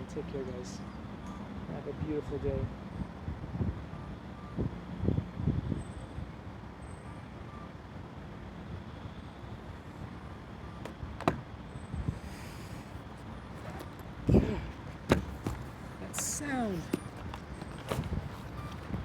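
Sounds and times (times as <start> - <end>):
wind buffeting microphone: 14.1 - 19.0.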